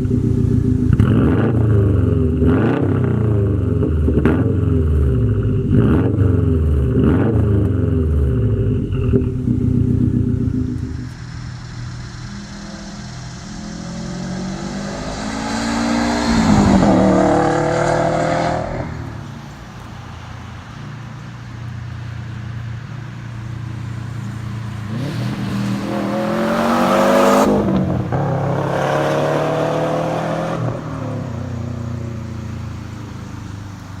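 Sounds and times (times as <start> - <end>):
low steady engine sound: 0.0 - 26.8, 30.8 - 34.0
car accelerating past: 5.2 - 20.7, 23.5 - 34.0.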